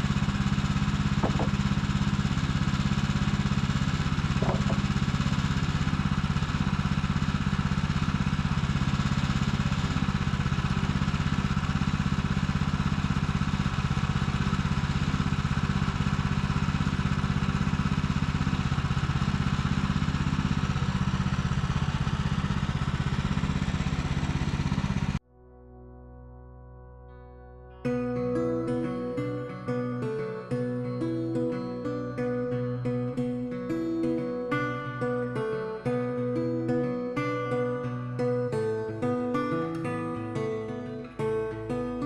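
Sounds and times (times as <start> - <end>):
small gasoline engine running: 0.0 - 25.2, 28.0 - 42.0
soft music: 25.3 - 42.0.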